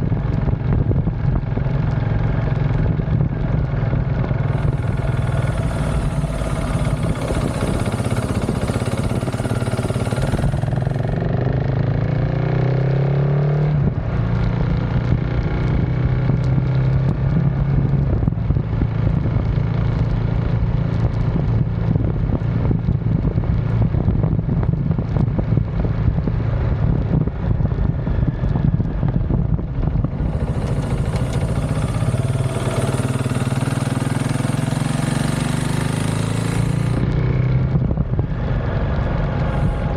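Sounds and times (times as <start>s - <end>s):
motorcycle engine accelerating: 0.0s - 39.9s
wind noise on microphone: 0.0s - 39.9s.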